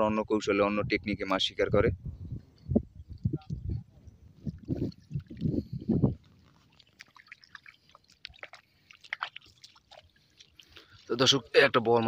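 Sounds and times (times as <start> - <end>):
small water drips: 4.4 - 11.3
river water splashing: 6.2 - 11.4.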